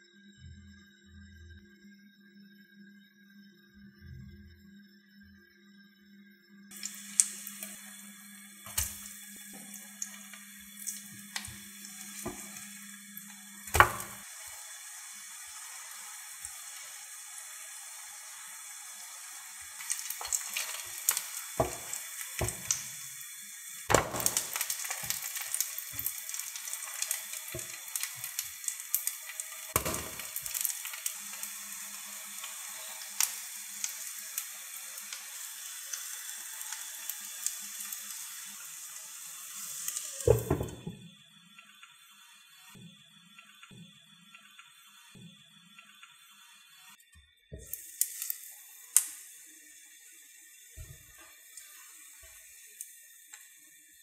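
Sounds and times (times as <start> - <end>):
patties sizzling in oil: 6.7 - 41.0, 45.8 - 54.0.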